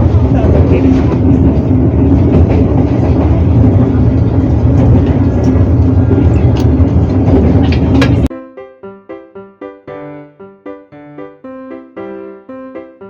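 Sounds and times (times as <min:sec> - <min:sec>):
passenger train rumbling: 0:00.0 - 0:08.3.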